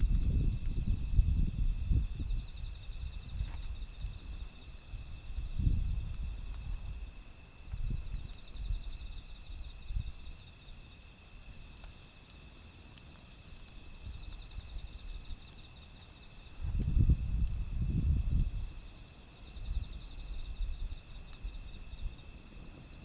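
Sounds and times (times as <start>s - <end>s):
wind gusting against microphone: 0.0s - 10.3s, 16.4s - 23.0s
insects chirping: 0.0s - 23.0s.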